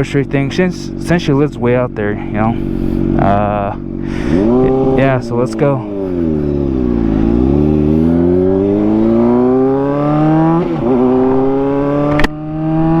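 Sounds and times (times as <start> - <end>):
motorcycle engine accelerating: 0.0 - 13.0
sharp click: 12.1 - 12.4.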